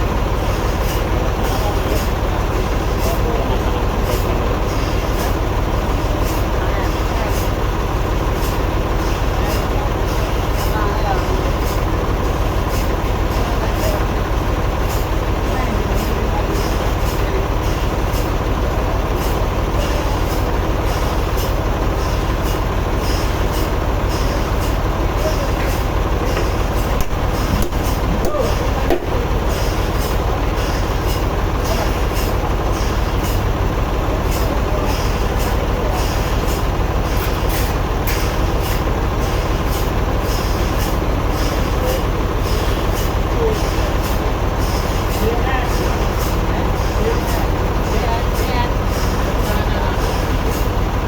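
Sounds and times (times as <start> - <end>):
sawmill machinery drone: 0.0 - 51.0.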